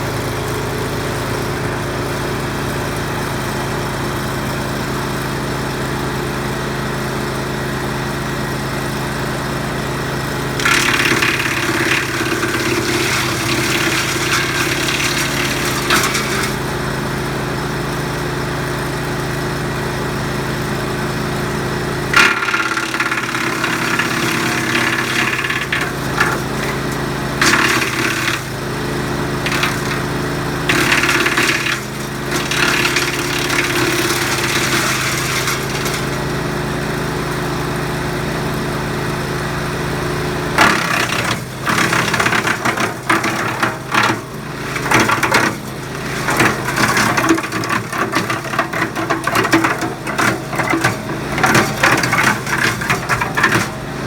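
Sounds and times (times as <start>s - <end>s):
small gasoline engine running: 0.0s - 54.0s
branches cracking in chipper: 10.6s - 16.5s, 30.7s - 36.2s.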